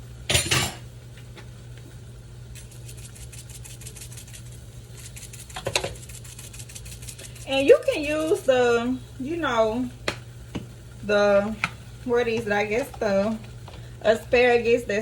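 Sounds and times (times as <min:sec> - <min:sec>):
steady low hum: 0:00.0 - 0:15.0
kitchen clatter: 0:00.3 - 0:00.8, 0:05.5 - 0:06.1.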